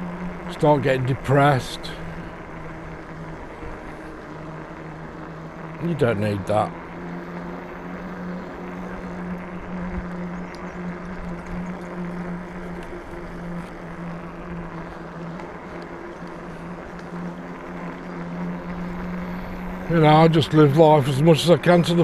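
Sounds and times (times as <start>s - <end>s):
electric bike motor hum: 0.0s - 22.0s.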